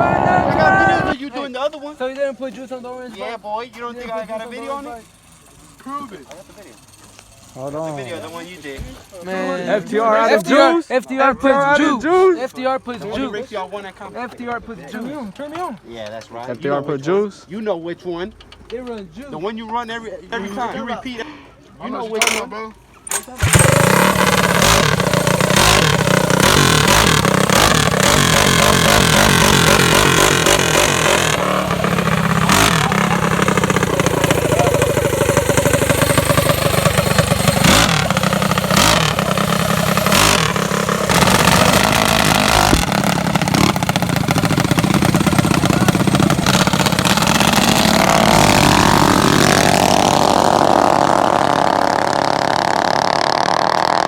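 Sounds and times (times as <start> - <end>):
mini bike engines revving: 3.8 - 10.8, 23.1 - 54.0.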